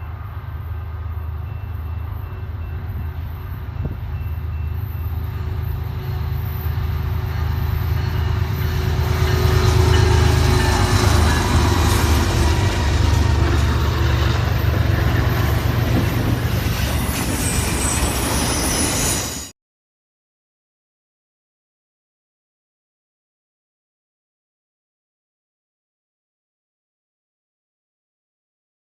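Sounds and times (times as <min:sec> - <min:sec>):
freight train cars rolling: 0:00.0 - 0:19.5
high wheel squeal: 0:01.1 - 0:19.5.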